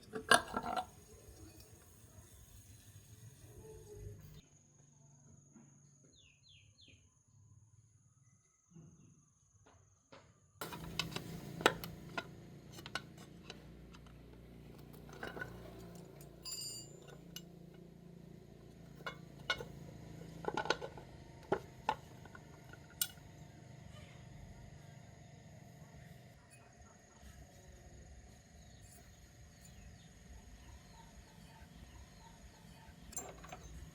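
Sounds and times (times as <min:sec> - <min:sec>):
metal parts and tools clinking: 0:00.0 - 0:01.8, 0:10.6 - 0:23.4, 0:33.1 - 0:33.9
steady low hum: 0:10.6 - 0:33.9.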